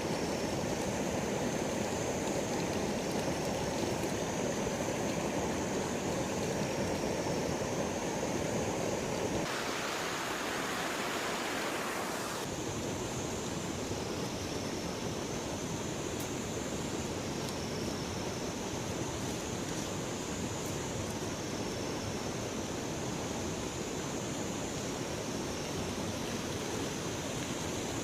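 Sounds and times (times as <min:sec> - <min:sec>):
river water rushing: 0:00.0 - 0:20.6.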